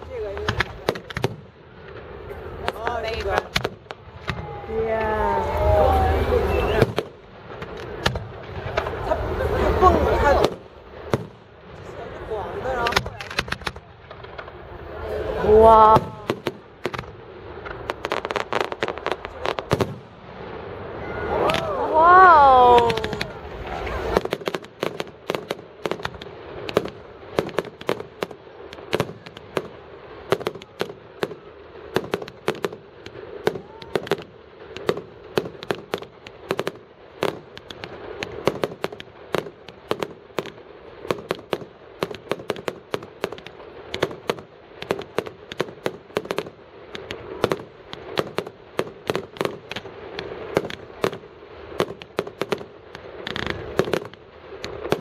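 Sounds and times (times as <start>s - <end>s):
fireworks banging: 0.0s - 55.0s.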